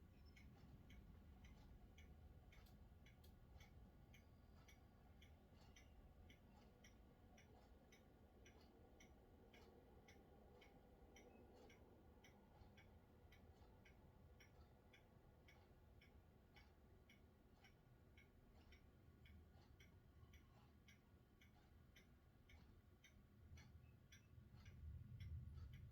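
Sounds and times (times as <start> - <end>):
faint ticking: 0.0 - 25.9
faint low rumble: 24.4 - 25.9.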